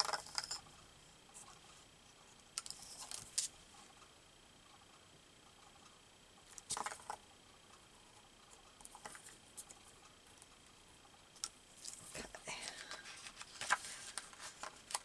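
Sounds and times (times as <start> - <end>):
paper rustling: 12.6 - 15.0.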